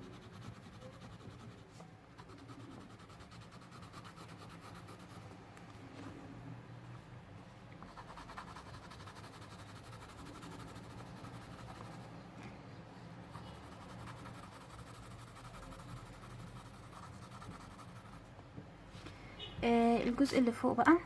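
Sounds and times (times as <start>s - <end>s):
pencil scratching on paper: 0.0s - 5.2s, 7.9s - 12.2s, 13.2s - 18.3s.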